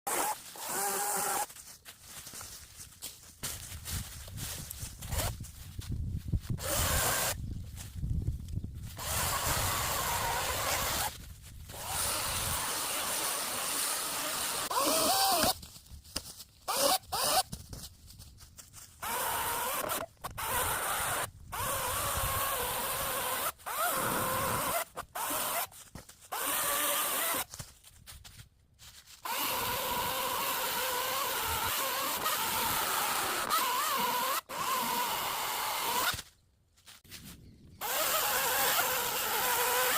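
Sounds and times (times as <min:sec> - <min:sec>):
power saw cutting wood: 0:06.6 - 0:07.4, 0:09.0 - 0:11.1, 0:11.7 - 0:15.5, 0:37.8 - 0:39.9.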